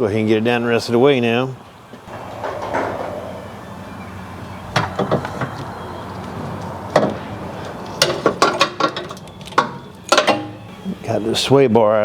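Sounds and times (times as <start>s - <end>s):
steady low hum: 2.0s - 6.5s
metal clanks and knocks: 2.1s - 5.6s, 8.0s - 10.6s.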